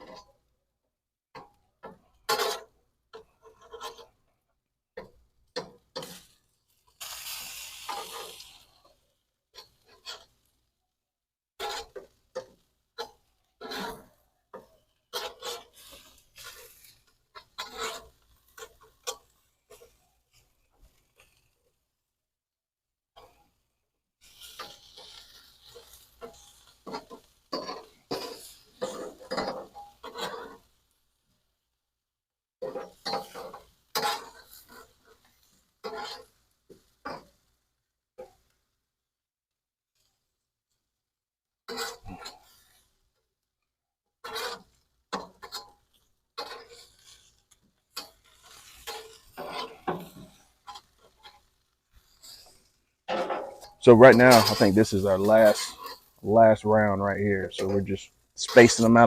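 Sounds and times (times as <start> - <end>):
metal utensil scraping grill grate: 2.3 - 4.1, 5.6 - 9.0, 9.6 - 10.4, 11.6 - 21.5, 24.2 - 30.8, 32.6 - 37.4, 41.7 - 42.9, 44.2 - 56.2, 57.6 - 57.8, 58.4 - 59.0.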